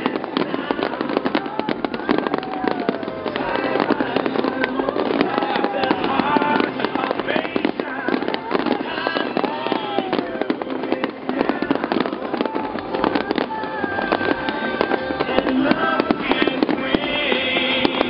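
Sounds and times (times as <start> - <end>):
fireworks bangs and crackles: 0.0 - 18.0
music playing: 0.0 - 18.0.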